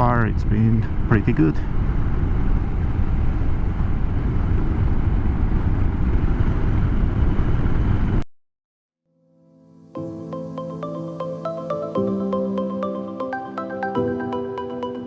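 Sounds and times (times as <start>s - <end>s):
motorcycle engine running: 0.0s - 8.2s
wind rumble on microphone: 0.0s - 8.2s.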